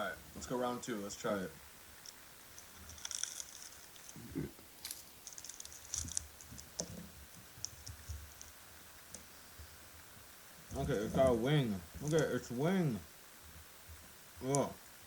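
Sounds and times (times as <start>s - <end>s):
crackling clicks of insect handled: 2.0s - 4.2s, 4.8s - 9.3s, 12.0s - 12.4s, 14.4s - 14.7s.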